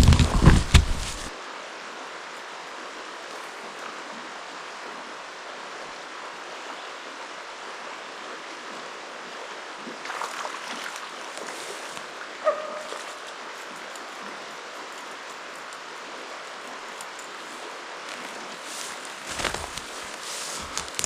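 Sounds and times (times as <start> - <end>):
rustling and clicking: 0.0 - 1.3, 18.1 - 21.0
river rapids flowing: 10.1 - 21.0.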